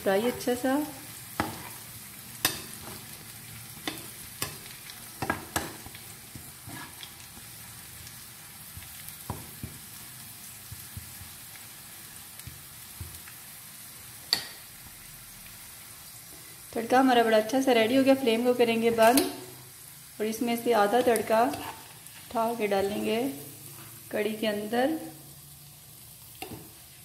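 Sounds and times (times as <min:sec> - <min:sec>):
onion sizzling in oil: 0:00.0 - 0:27.0.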